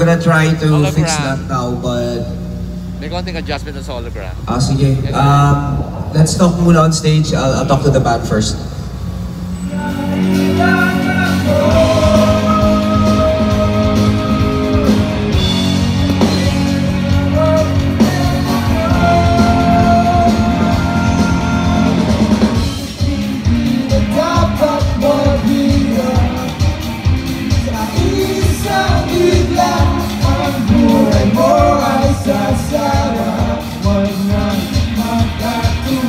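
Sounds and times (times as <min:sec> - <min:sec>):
live rock band playing: 0:00.0 - 0:07.0, 0:08.7 - 0:36.0
person singing: 0:09.6 - 0:36.0.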